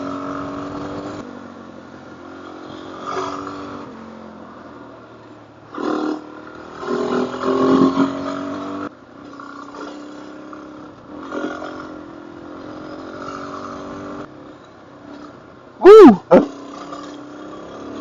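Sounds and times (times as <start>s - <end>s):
motorcycle engine revving: 0.0s - 4.7s, 5.7s - 14.4s, 15.1s - 18.0s.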